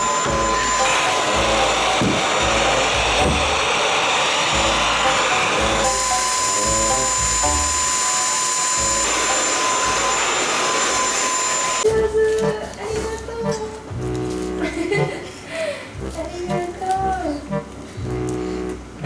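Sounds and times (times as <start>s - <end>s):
background music: 0.0s - 3.7s, 4.5s - 10.2s, 11.8s - 19.0s
vacuum cleaner running: 0.0s - 11.9s.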